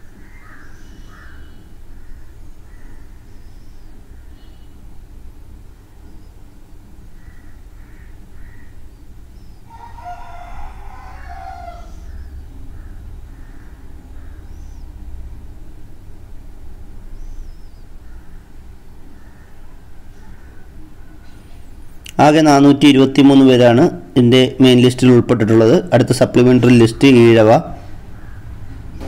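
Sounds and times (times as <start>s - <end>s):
bird calling: 0.0s - 5.0s, 6.0s - 15.4s, 17.0s - 21.9s, 25.6s - 29.0s.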